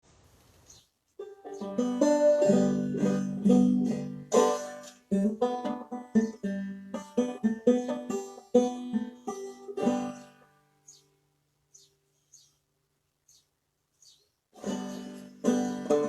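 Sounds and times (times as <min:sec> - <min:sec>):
banjo plucked notes: 0:01.2 - 0:10.6, 0:14.6 - 0:16.0.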